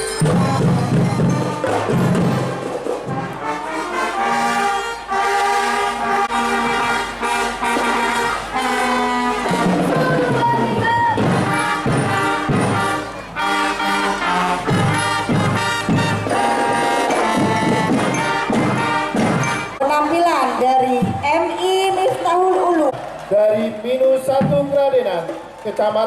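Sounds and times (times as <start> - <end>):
drum strikes: 0.0 - 3.6, 6.3 - 19.8, 24.2 - 25.5
brass-like melody: 0.0 - 20.6.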